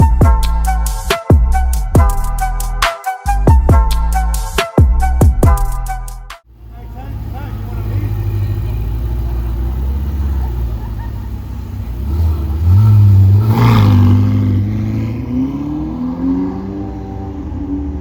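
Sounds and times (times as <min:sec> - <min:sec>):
car engine revving: 0:06.5 - 0:18.0.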